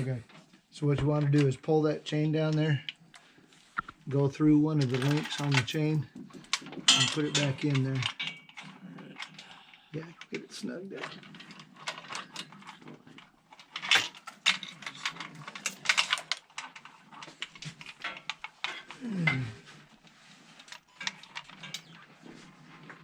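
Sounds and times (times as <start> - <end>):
chain clinking and rattling: 4.7 - 23.0.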